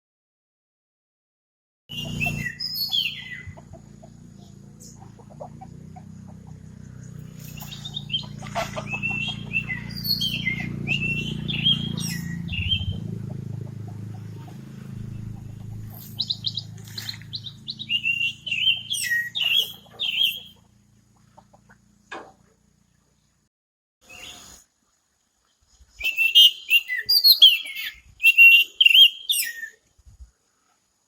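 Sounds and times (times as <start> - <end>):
songbird warbling: 1.9 - 3.8, 6.0 - 20.7.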